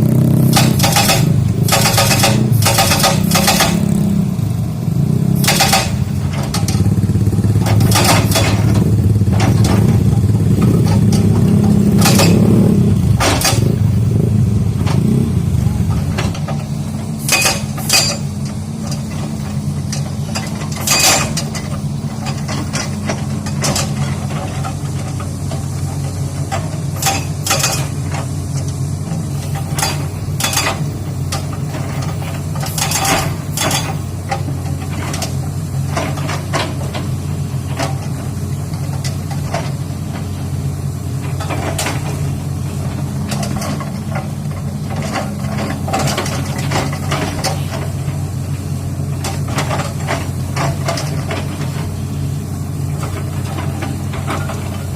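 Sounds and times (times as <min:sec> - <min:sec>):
excavator engine running: 0:00.0 - 0:54.9
metallic clanks on rock: 0:00.5 - 0:04.0, 0:05.4 - 0:06.9, 0:07.6 - 0:10.0, 0:10.6 - 0:13.8, 0:15.9 - 0:25.6, 0:26.5 - 0:28.2, 0:29.4 - 0:37.1.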